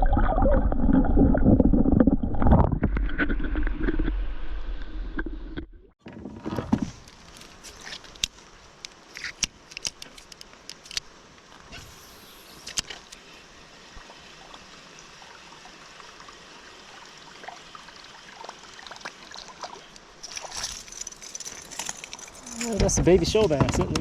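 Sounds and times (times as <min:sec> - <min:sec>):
river water flowing: 0:07.0 - 0:22.8.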